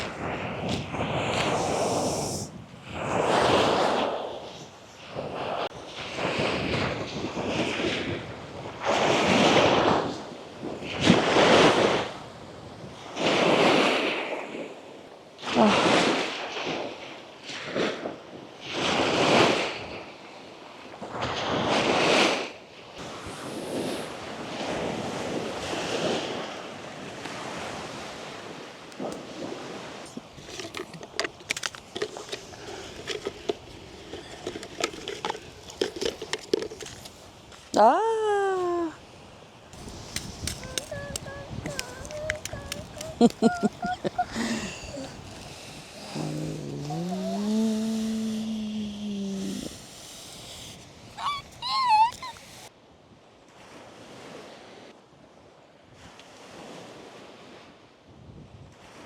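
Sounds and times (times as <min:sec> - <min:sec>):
wind on microphone: 0:00.0 - 0:14.8, 0:39.8 - 0:52.7
sea waves breaking on beach: 0:00.0 - 0:37.7, 0:39.0 - 0:55.0, 0:55.9 - 0:58.1.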